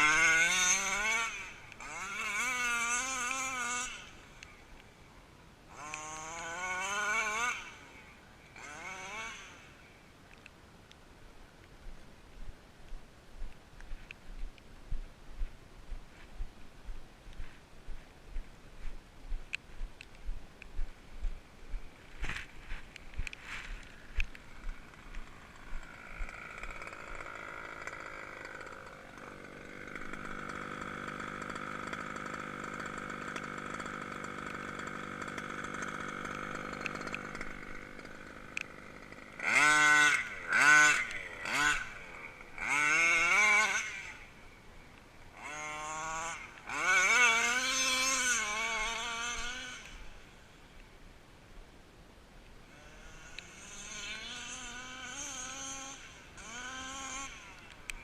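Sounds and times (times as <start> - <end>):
model car engine revving: 0.0 - 4.8, 5.7 - 10.0, 23.2 - 50.5, 52.6 - 58.0.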